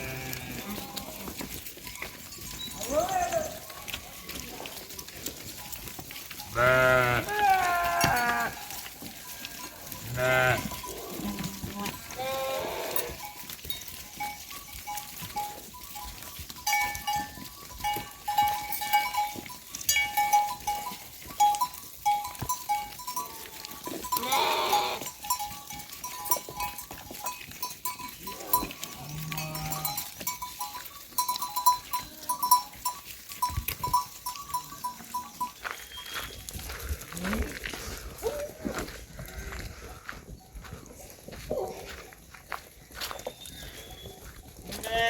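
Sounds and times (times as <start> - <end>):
loud bleat: 0.0 - 1.3, 6.5 - 8.6, 10.0 - 13.2, 24.2 - 25.1, 44.8 - 45.0
animal bell clinking: 0.0 - 38.6, 40.0 - 45.0.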